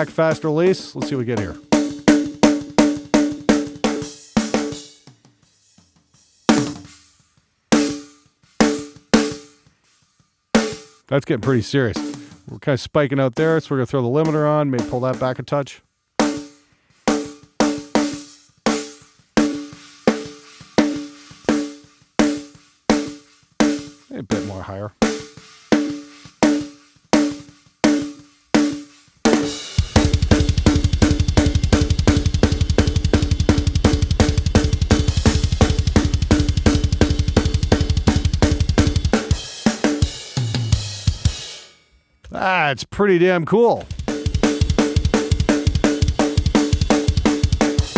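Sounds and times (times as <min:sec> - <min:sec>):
fast double bass drum: 0:00.0 - 0:04.0, 0:14.3 - 0:15.4, 0:29.3 - 0:40.5, 0:43.8 - 0:47.9
cymbals: 0:25.0 - 0:41.9.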